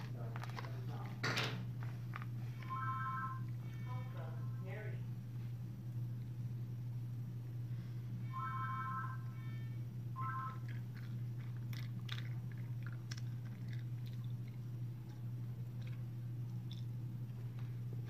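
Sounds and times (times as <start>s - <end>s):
chewing crunchy cookie: 0.0s - 2.8s, 10.2s - 18.0s
steady low hum: 0.0s - 18.0s
brief high tone: 8.3s - 10.7s.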